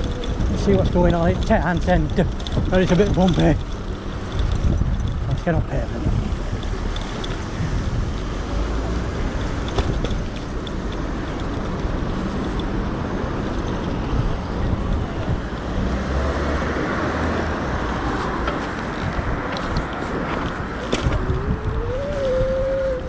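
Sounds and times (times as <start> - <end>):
rattling clicks: 0.0 - 5.5
tyre noise: 0.0 - 23.0
wind on microphone: 0.0 - 23.0.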